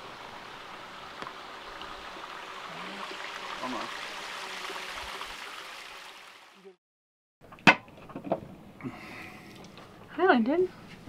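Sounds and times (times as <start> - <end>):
rushing stream water: 0.0 - 6.8.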